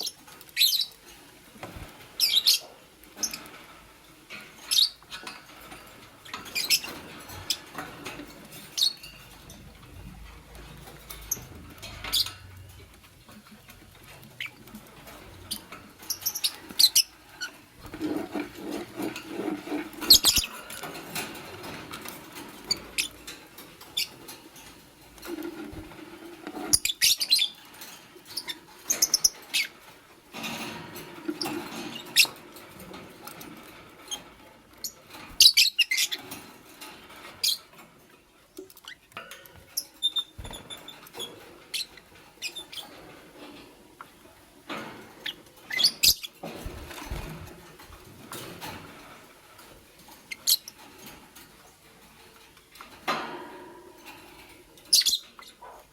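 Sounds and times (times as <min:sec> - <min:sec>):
lovebirds chirping: 0:00.0 - 0:01.0, 0:01.8 - 0:03.4, 0:06.3 - 0:07.7, 0:11.2 - 0:12.4, 0:15.4 - 0:18.8, 0:19.9 - 0:20.6, 0:45.2 - 0:47.6
clicks and rustling: 0:03.0 - 0:29.6, 0:36.2 - 0:55.1.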